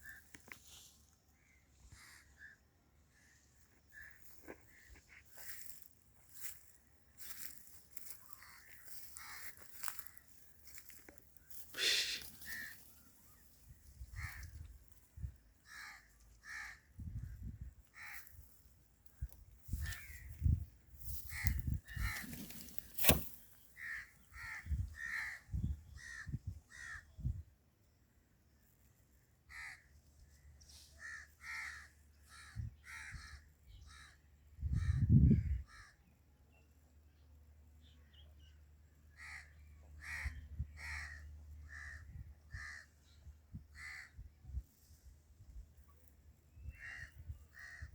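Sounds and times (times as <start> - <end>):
bird giving harsh caw calls: 8.3 - 10.8, 11.5 - 13.0, 14.0 - 14.7, 15.6 - 17.0, 17.9 - 18.4, 19.7 - 23.2, 23.8 - 27.0, 29.5 - 29.9, 31.0 - 34.2, 39.1 - 42.9, 43.8 - 44.2, 46.7 - 47.9.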